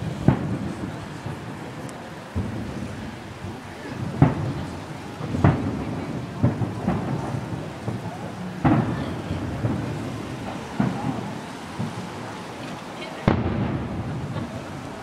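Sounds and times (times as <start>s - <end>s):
distant fireworks booming: 0.0s - 15.0s.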